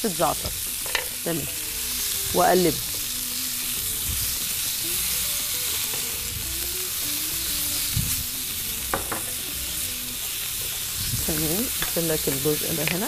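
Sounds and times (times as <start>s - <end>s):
chicken sizzling on grill: 0.0s - 13.0s
soft knock: 8.9s - 9.3s.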